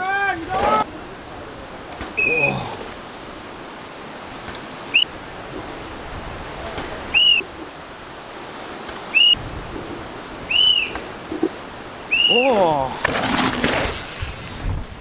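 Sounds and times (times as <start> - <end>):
wind on microphone: 9.3 - 11.7, 13.8 - 15.0.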